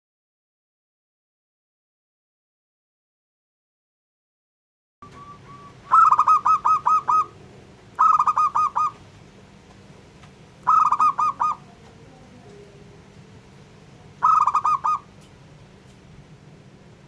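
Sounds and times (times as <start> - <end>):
dove cooing in staccato bursts: 5.0 - 9.1, 10.6 - 11.8, 14.2 - 15.2
faint steady background hum: 5.0 - 17.0.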